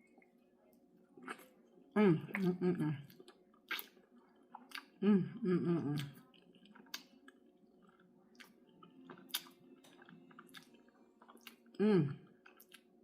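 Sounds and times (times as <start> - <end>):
person eating: 1.2 - 13.0
person humming: 2.0 - 3.0, 5.0 - 6.1, 11.8 - 12.2
wet mouth clicks: 2.4 - 4.0.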